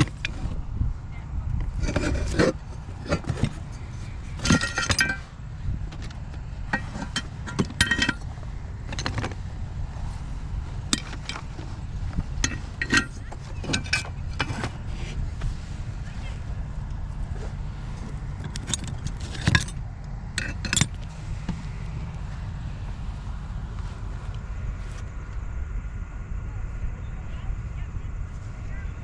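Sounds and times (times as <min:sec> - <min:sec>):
low rumble: 0:00.0 - 0:29.0
metallic clinks and jangles: 0:01.9 - 0:05.3, 0:06.7 - 0:09.2, 0:12.4 - 0:14.5, 0:20.4 - 0:21.1.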